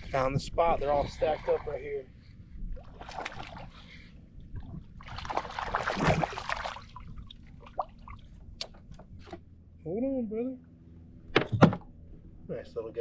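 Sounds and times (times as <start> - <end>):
water splashing around kayak: 2.8 - 8.4.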